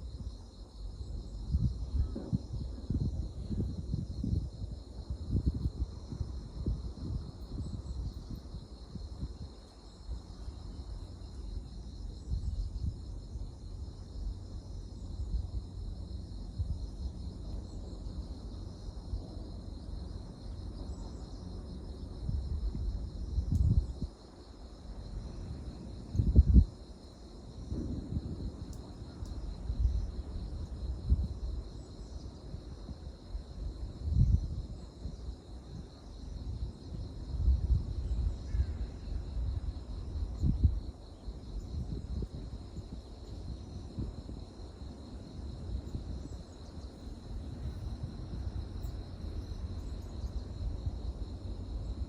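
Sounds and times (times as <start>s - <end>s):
wind buffeting microphone: 0.0s - 10.9s, 21.3s - 52.0s
insects chirping: 0.0s - 52.0s.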